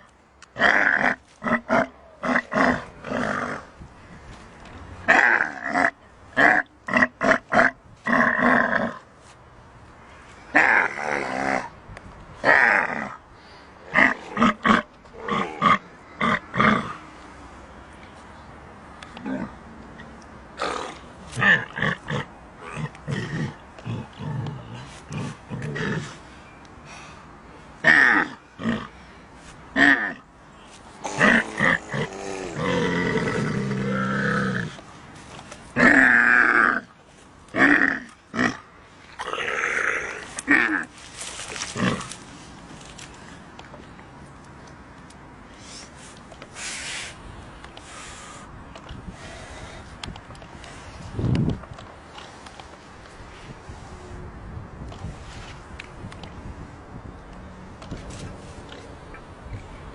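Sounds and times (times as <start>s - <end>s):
animal grunting and groaning: 0.6s - 3.8s, 5.1s - 9.0s, 10.5s - 11.8s, 12.4s - 13.2s, 13.8s - 17.1s, 19.2s - 19.6s, 20.6s - 26.2s, 27.8s - 28.9s, 29.8s - 30.3s, 31.0s - 34.8s, 35.8s - 36.9s, 37.5s - 42.2s.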